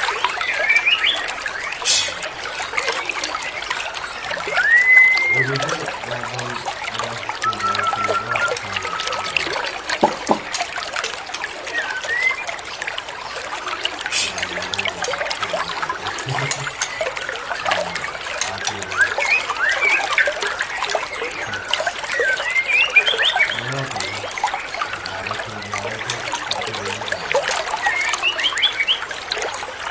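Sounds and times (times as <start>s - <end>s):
water trickling and dripping: 0.0s - 29.9s
chirped bird notes: 0.1s - 10.6s, 11.7s - 12.6s, 15.4s - 29.1s.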